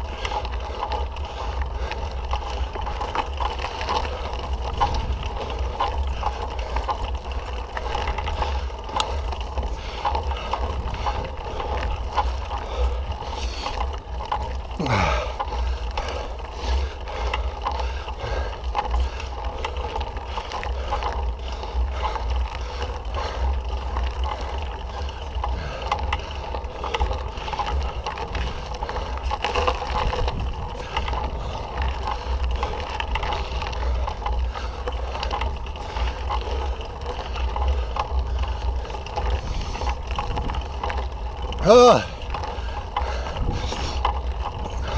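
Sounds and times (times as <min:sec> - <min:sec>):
bike clicks and rattles: 0:00.0 - 0:44.9
wind buffeting microphone: 0:04.0 - 0:13.6, 0:24.8 - 0:44.9.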